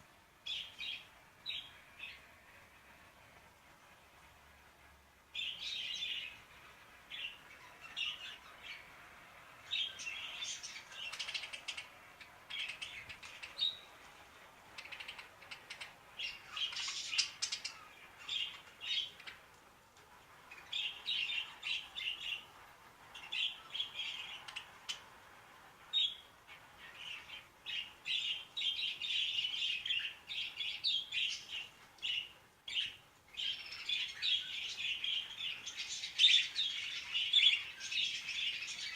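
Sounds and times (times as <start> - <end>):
budgerigars chirping: 9.7 - 13.9, 14.8 - 19.4.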